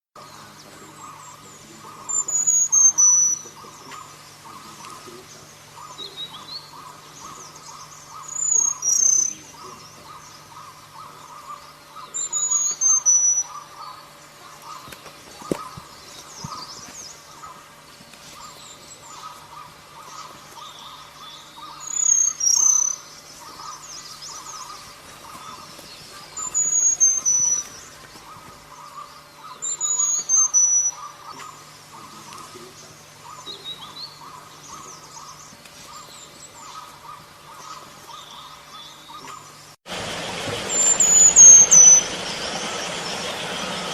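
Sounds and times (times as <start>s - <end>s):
insect chorus: 0.2s - 43.9s
bird calling sharp high notes: 8.1s - 14.0s, 24.4s - 27.8s, 40.6s - 43.9s
low hum: 30.9s - 43.9s.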